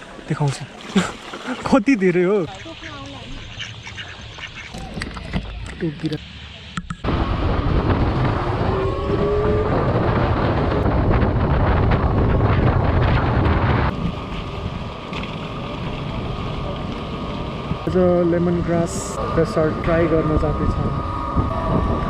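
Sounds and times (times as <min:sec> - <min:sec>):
road and tyre noise: 0:02.5 - 0:22.0
wind buffeting microphone: 0:07.0 - 0:22.0.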